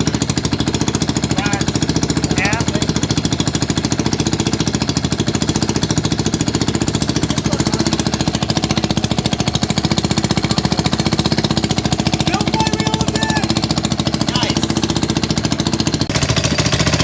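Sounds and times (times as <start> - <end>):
single-cylinder engine rapid pulse: 0.0 - 17.0.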